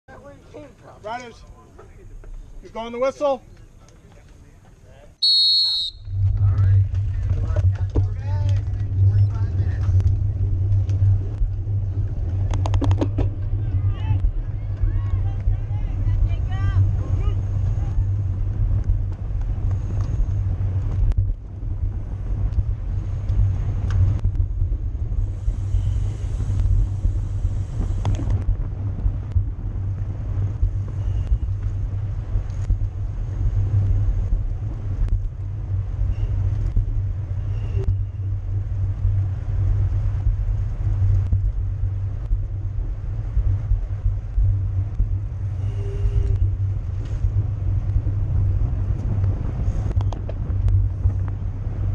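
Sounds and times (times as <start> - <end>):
bicycle tyre road noise: 0.1 - 51.9
wind rumble on microphone: 5.9 - 51.9
bright hiss: 25.3 - 28.2.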